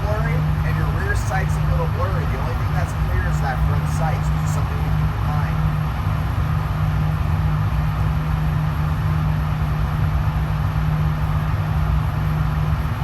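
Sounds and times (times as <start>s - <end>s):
air handling hum: 0.0s - 13.0s.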